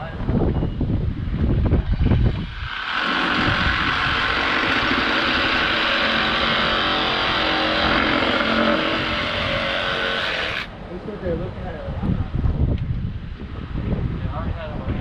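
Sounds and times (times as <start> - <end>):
engine running steadily: 1.8 - 10.7.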